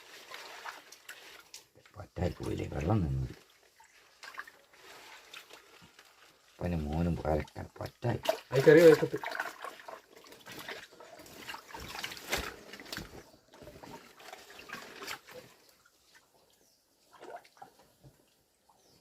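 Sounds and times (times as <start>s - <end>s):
shallow water splashing: 0.0s - 1.8s, 3.0s - 16.4s.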